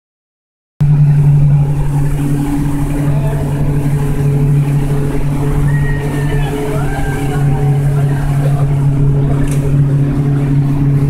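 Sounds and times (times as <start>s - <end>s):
boat engine droning: 0.8s - 11.0s
faint voices: 1.0s - 10.7s.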